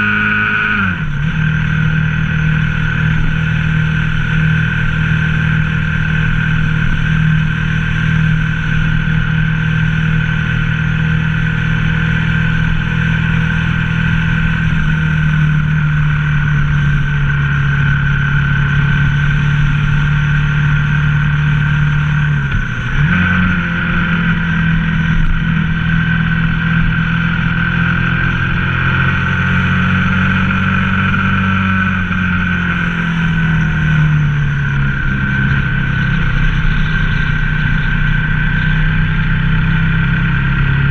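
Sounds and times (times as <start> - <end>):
motorcycle engine cruising: 0.0 - 40.9.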